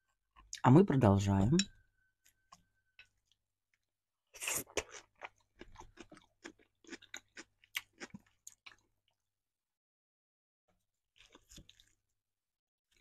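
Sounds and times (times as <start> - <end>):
person chewing food: 2.2 - 9.2, 11.1 - 12.2.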